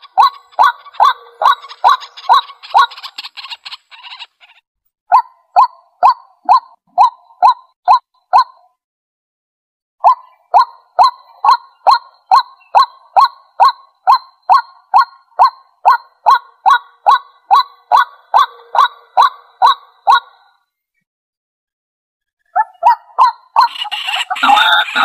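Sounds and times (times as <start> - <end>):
waterhen calling: 0.0 - 4.6, 22.6 - 25.0.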